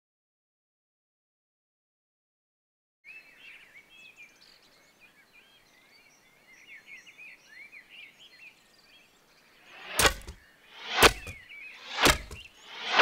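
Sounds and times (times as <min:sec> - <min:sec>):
birds chirping and whistling: 0:03.1 - 0:13.0
faint outdoor hiss: 0:03.1 - 0:13.0.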